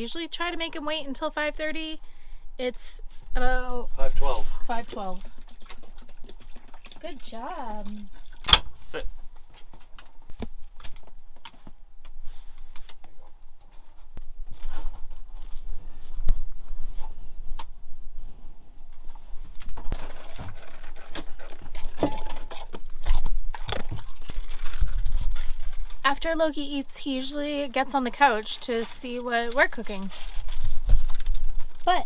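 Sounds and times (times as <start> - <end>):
dog eating from bowl: 4.7 - 8.8, 19.6 - 26.0.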